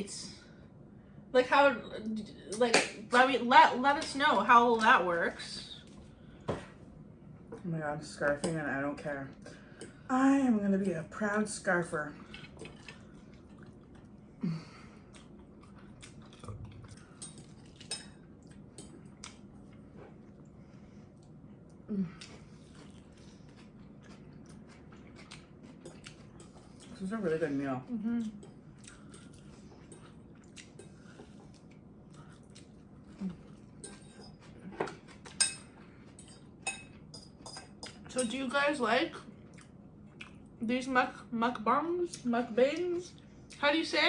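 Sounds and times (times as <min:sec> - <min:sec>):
chewing and biting: 0:15.0 - 0:19.9, 0:22.2 - 0:27.0, 0:28.3 - 0:33.7.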